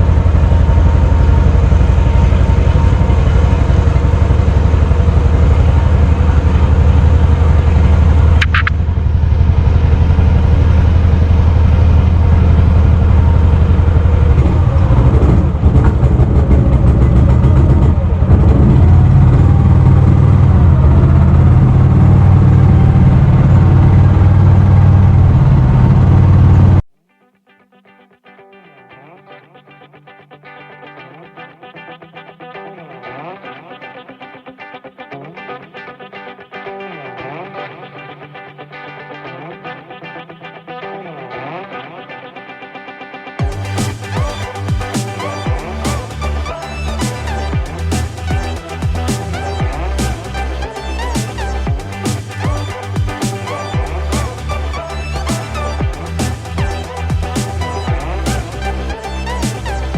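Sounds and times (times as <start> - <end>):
small boat engine running: 0.0 - 26.8
brief high tone: 5.0 - 16.5.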